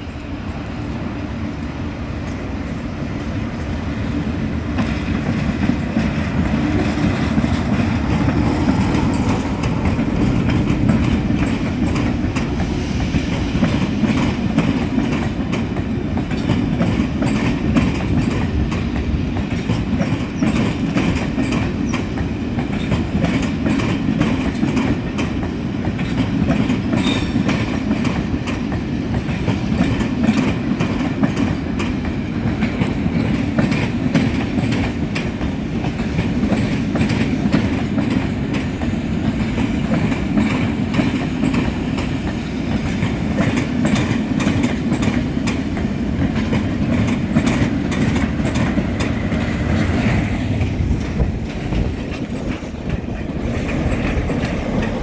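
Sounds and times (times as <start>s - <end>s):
wheels clicking over rail joints: 4.7s - 55.0s
wheel-on-rail rumble: 29.1s - 55.0s.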